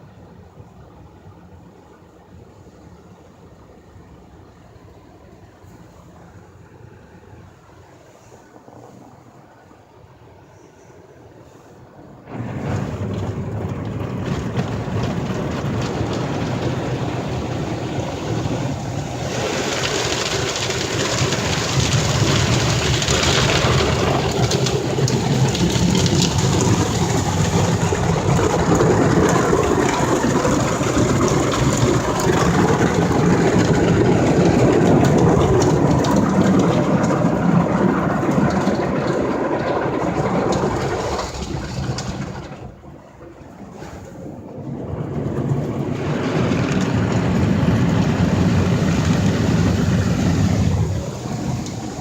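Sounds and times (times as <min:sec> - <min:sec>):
car wash spray and machinery: 0:00.0 - 0:52.0
low rumble: 0:12.2 - 0:52.0.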